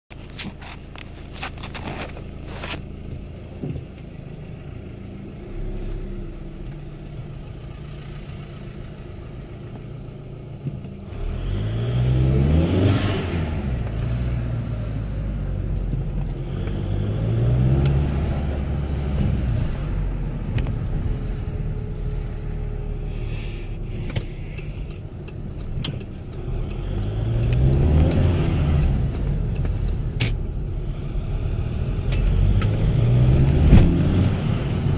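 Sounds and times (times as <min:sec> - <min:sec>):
diesel engine revving: 0:11.0 - 0:34.9.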